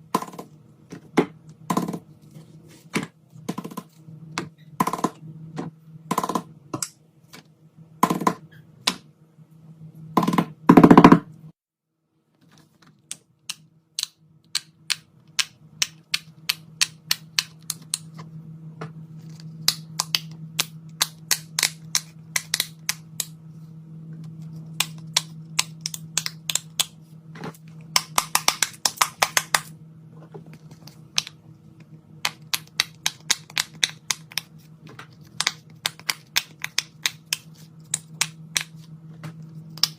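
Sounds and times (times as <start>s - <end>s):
low steady hum: 0.0s - 39.9s
clicks and taps of fidget toys: 27.9s - 29.7s, 35.4s - 38.7s.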